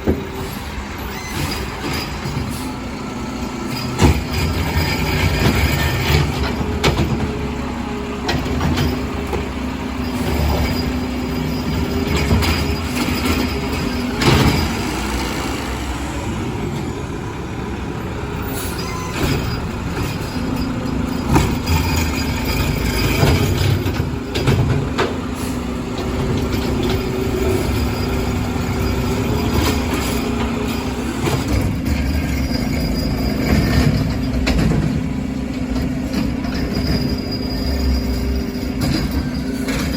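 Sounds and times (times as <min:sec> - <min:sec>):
diesel truck engine drone: 0:00.0 - 0:39.9
metal knocks and clanks: 0:03.8 - 0:07.4, 0:19.1 - 0:25.3, 0:25.9 - 0:37.4.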